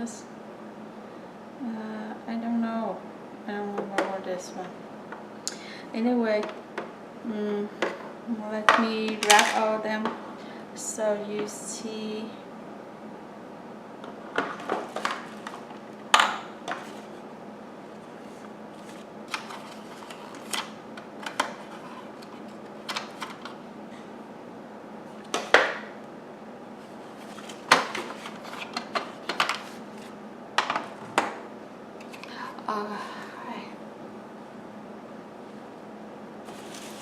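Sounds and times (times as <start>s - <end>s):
vacuum cleaner parts clacking: 8.7s - 9.7s.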